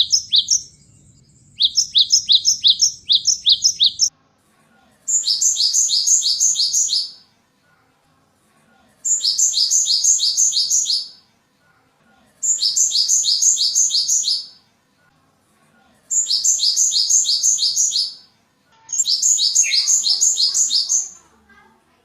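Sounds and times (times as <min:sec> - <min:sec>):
bird calling high notes: 0:00.0 - 0:04.1, 0:18.9 - 0:21.2.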